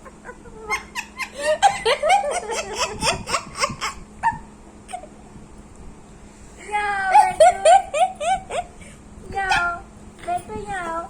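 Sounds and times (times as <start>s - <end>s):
rapid giggling laughter: 0.0s - 5.1s, 7.2s - 8.8s.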